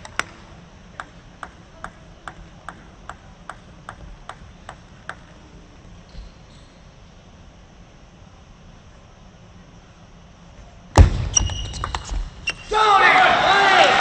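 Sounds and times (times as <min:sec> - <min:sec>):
table tennis ball bouncing: 0:01.0 - 0:05.4.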